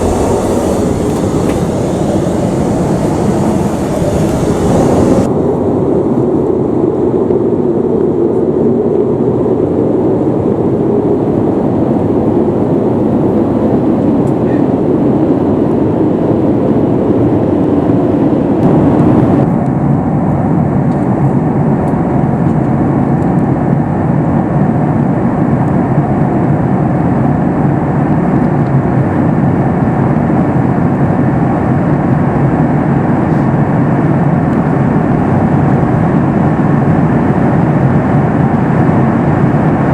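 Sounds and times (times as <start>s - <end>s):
air rushing along airplane cabin: 0.0s - 6.8s, 9.8s - 19.6s, 31.6s - 39.9s
jet engine hum: 0.0s - 7.4s, 9.7s - 19.6s, 33.1s - 39.9s.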